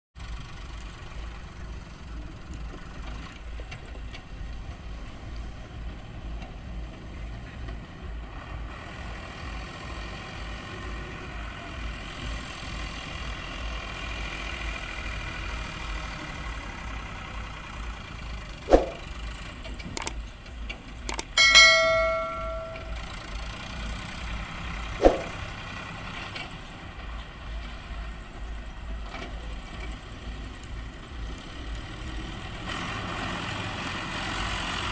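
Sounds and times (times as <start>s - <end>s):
ringing metallic clang: 21.3s - 23.2s.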